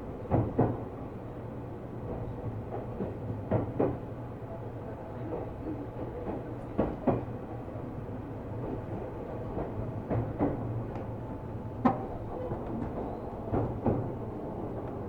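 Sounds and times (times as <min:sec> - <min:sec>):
train running hum: 0:00.0 - 0:15.0
wheels clacking over rail joints: 0:09.6 - 0:15.0.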